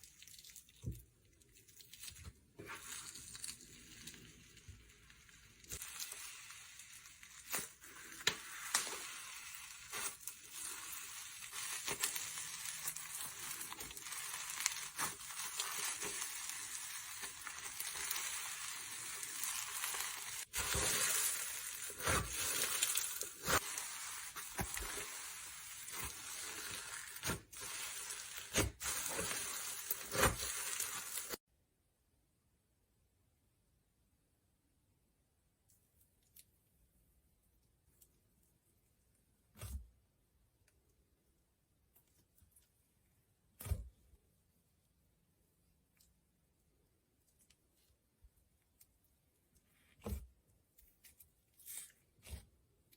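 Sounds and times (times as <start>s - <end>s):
slime squeezed crackling and popping: 5.7s - 31.4s.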